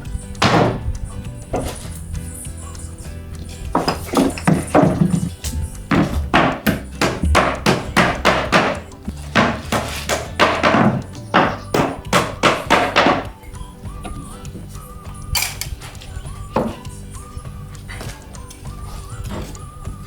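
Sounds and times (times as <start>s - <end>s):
background music: 0.0s - 20.0s
rapid sharp knocks: 3.7s - 13.3s.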